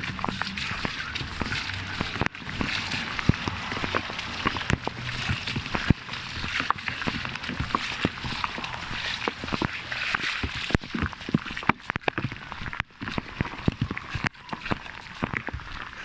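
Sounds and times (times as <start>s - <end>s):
heavy rain hissing: 0.0s - 11.0s
raindrops ticking on plastic: 0.0s - 16.0s.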